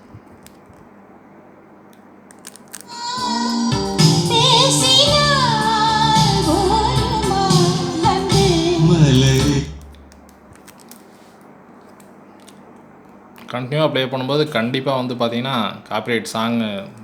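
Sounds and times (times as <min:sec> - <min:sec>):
faint hum and hiss: 0:00.0 - 0:17.0
song with female singer on loudspeakers: 0:02.9 - 0:09.9.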